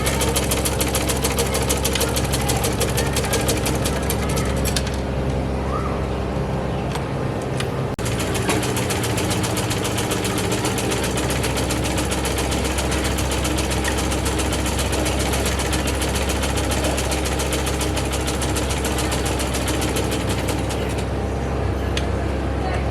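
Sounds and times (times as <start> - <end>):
sewing machine ticking and humming: 0.0 - 4.9, 8.0 - 21.2.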